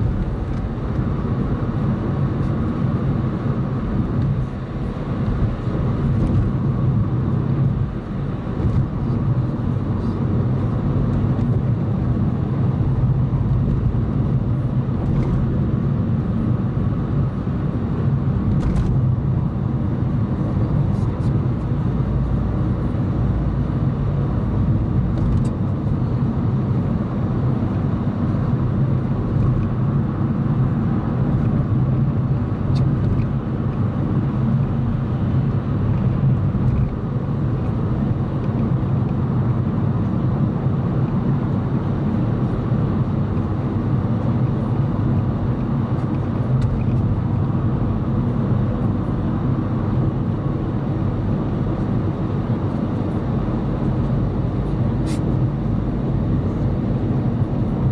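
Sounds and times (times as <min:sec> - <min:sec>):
car engine and tyre hum: 0:00.0 - 0:57.9.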